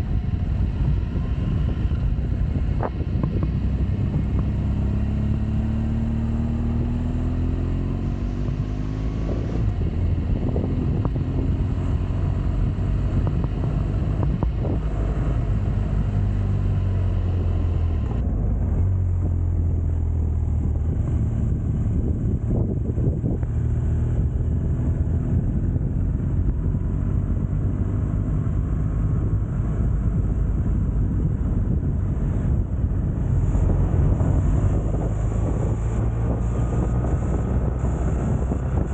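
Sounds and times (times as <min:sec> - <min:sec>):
wind noise on microphone: 0:00.0 - 0:38.9
motorcycle engine running: 0:08.0 - 0:38.9.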